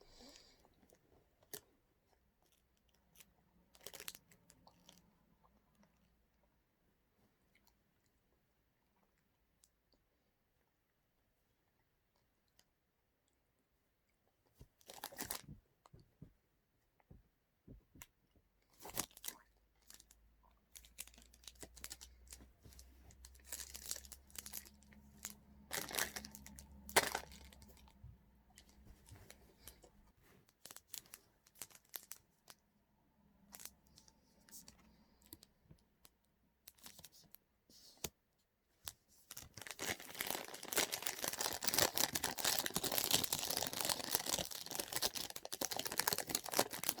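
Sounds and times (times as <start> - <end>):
snack wrapper tearing and crinkling: 20.8 - 29.8, 30.6 - 32.2, 39.3 - 47.0.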